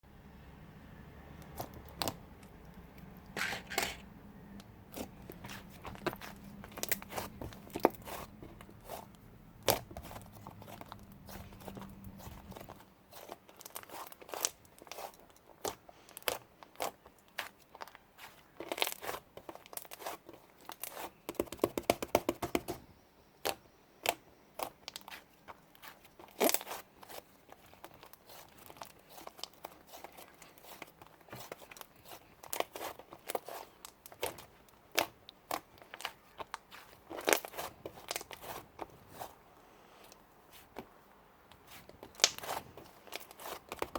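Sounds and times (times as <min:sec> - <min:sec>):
slime clicking and popping: 0:42.0 - 0:42.6.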